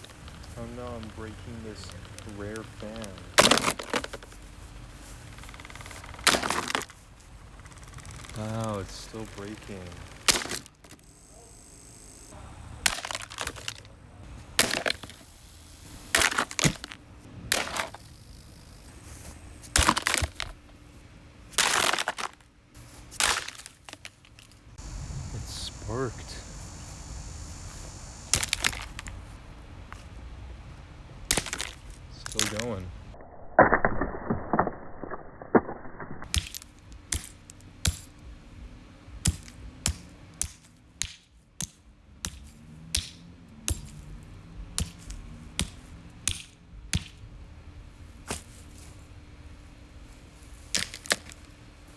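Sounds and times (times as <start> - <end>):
fan housing cracking under blows: 0.0 - 4.5, 5.3 - 11.0, 28.3 - 29.3, 31.3 - 32.8
plastic and metal parts breaking: 1.8 - 4.4, 5.9 - 7.0, 9.4 - 11.0, 12.8 - 13.9, 16.2 - 18.0, 19.8 - 20.6, 21.6 - 22.4, 23.2 - 24.4, 28.4 - 29.2, 31.3 - 32.8.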